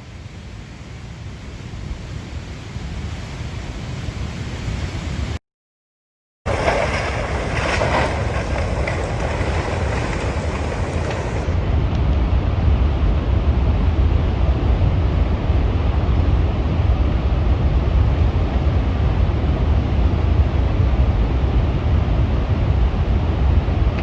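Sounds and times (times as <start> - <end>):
roaring wind rush: 0.0 - 5.4, 6.5 - 24.0
wind buffeting microphone: 6.5 - 24.0.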